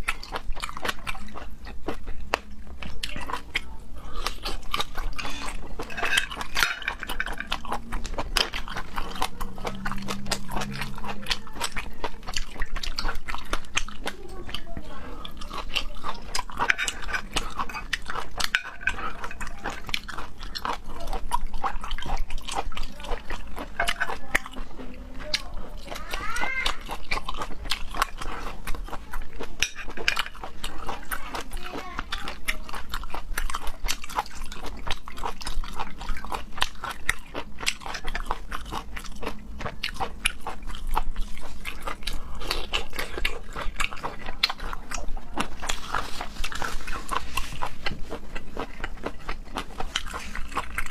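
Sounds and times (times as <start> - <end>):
wet chewing and biting: 0.0 - 50.9.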